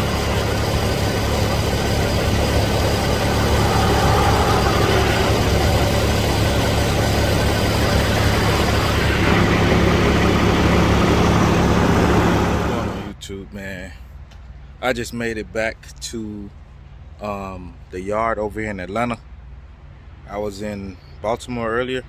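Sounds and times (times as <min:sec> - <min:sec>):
diesel truck engine running: 0:00.0 - 0:13.2.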